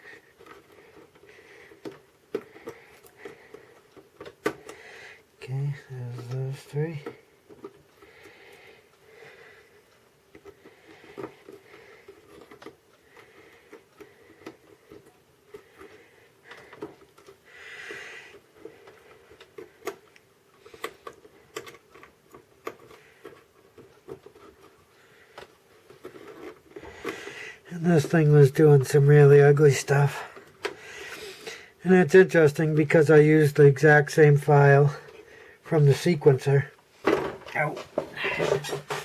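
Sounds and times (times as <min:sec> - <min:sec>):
connectors clicking on pins: 0:18.3 - 0:27.3.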